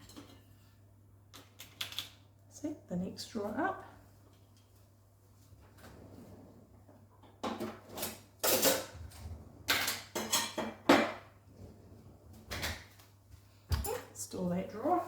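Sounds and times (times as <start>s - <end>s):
dishes and utensils clattering: 7.3s - 11.3s.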